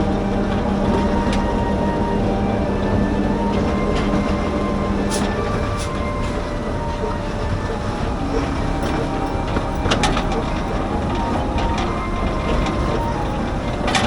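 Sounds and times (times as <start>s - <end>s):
train rumbling on track: 0.0s - 14.0s
wheels clicking over rails: 0.0s - 14.0s.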